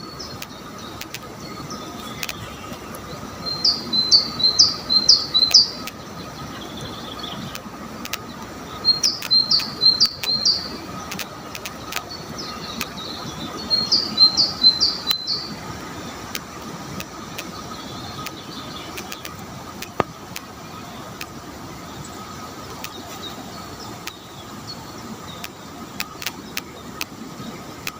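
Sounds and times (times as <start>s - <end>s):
steady low rumble: 0.0s - 27.8s
songbird singing: 0.0s - 27.9s
light clicks: 0.4s - 1.3s, 1.9s - 3.1s, 7.5s - 12.2s, 19.0s - 20.5s.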